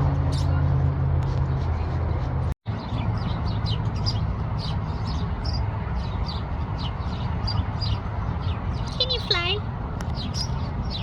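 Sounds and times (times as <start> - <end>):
birds chirping: 2.7 - 11.0.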